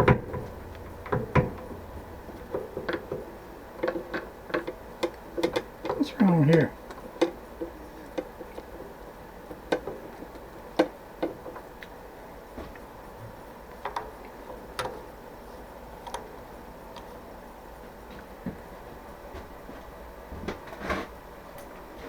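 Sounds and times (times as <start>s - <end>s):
low steady hum: 0.0s - 9.3s.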